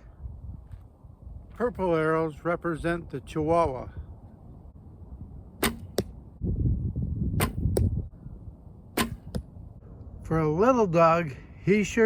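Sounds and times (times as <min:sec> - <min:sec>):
arrow striking target: 0:05.6 - 0:06.2, 0:07.4 - 0:08.0, 0:08.9 - 0:09.6.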